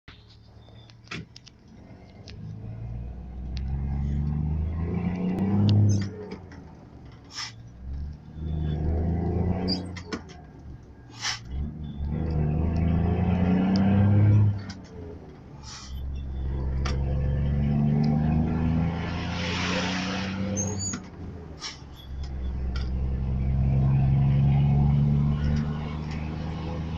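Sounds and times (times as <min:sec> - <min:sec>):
diesel engine revving: 0:01.7 - 0:26.9
short sharp hisses: 0:11.1 - 0:11.5.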